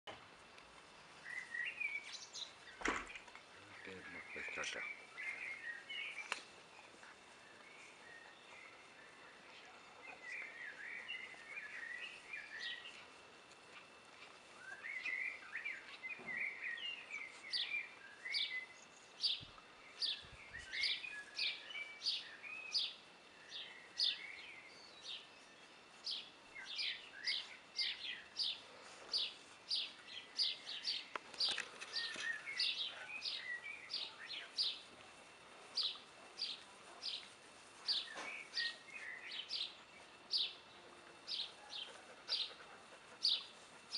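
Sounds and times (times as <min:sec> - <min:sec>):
bird chirping: 0:01.1 - 0:43.9.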